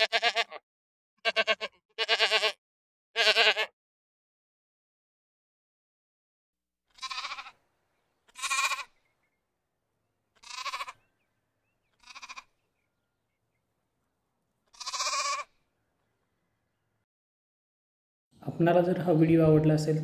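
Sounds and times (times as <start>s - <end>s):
farm animal bleating: 0.0s - 0.6s, 1.2s - 3.8s, 6.9s - 7.6s, 8.2s - 9.1s, 10.3s - 13.0s, 14.6s - 15.6s.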